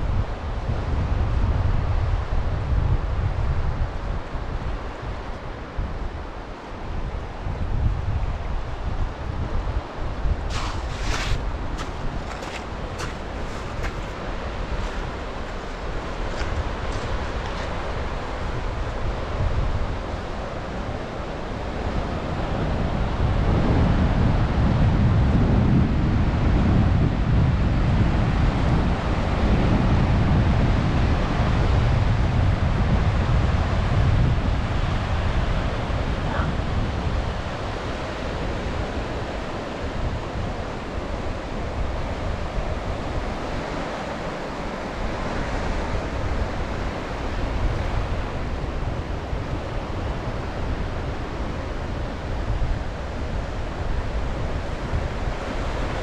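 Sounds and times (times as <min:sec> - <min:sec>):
wind buffeting microphone: 0:00.0 - 0:56.0
sea waves washing onto beach: 0:08.8 - 0:23.0, 0:36.9 - 0:56.0.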